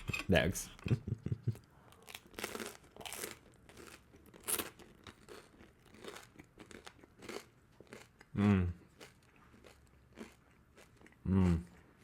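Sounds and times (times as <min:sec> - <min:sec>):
person crunching toast: 0:02.0 - 0:11.2.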